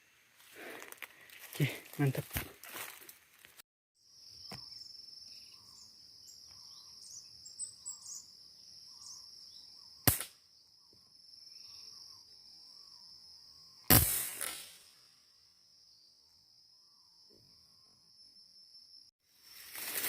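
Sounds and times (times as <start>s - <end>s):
insects droning: 0.1s - 20.0s
bird chirps: 4.2s - 13.9s
sharp crack: 10.0s - 10.4s, 13.9s - 15.1s.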